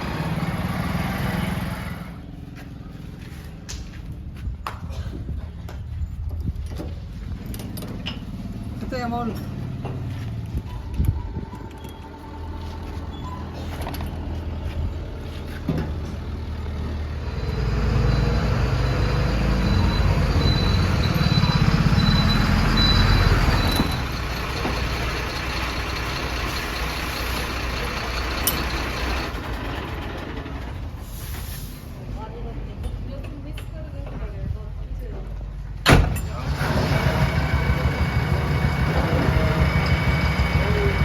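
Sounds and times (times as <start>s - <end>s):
diesel engine revving: 0.0s - 2.4s, 7.5s - 32.1s, 35.9s - 41.0s.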